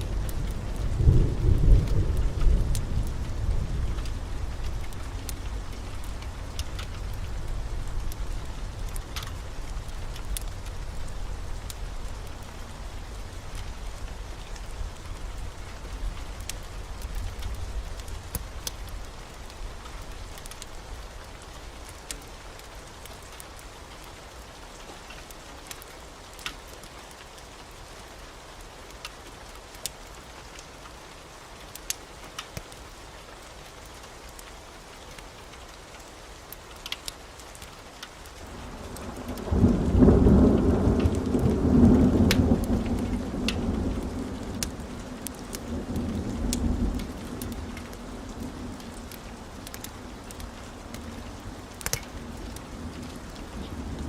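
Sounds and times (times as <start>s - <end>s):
thunder rumbling: 0.0s - 20.3s, 38.5s - 54.0s
steady rain: 0.0s - 54.0s.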